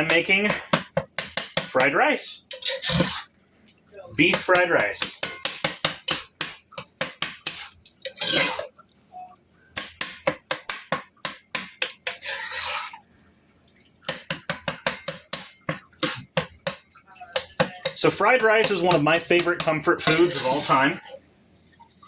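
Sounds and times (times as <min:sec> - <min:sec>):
utensil scraping: 0:00.0 - 0:03.3, 0:04.2 - 0:08.7, 0:09.9 - 0:13.0, 0:14.1 - 0:21.0
utensil clicking on cookware: 0:04.3 - 0:08.6, 0:09.8 - 0:12.9, 0:14.0 - 0:20.8.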